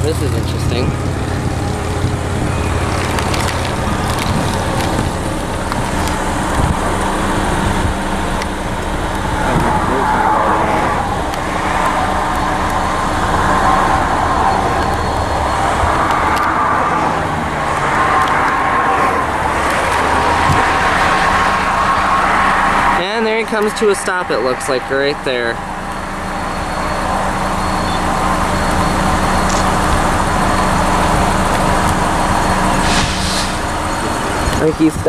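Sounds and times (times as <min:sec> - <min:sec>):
locomotive diesel engine droning: 0:00.0 - 0:35.0.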